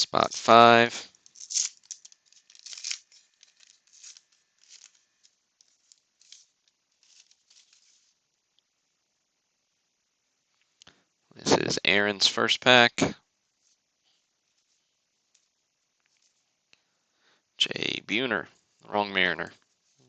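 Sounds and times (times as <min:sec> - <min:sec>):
wrapper tearing and crinkling: 0:01.2 - 0:08.1.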